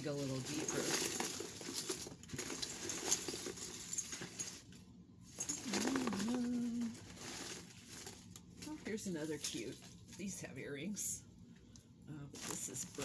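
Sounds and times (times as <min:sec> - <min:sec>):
jewelry clicking and rustling: 0:00.0 - 0:10.2.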